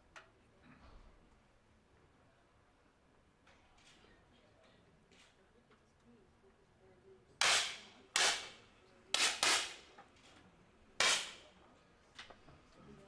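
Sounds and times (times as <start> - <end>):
air pistol shots echoing: 7.4 - 8.5, 9.2 - 9.8, 11.0 - 11.4.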